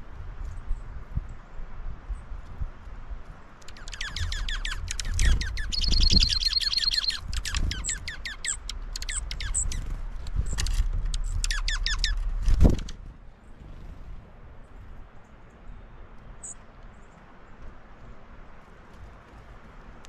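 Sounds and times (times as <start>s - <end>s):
bird singing sharp notes: 3.7s - 12.4s
low rumble: 4.8s - 15.2s.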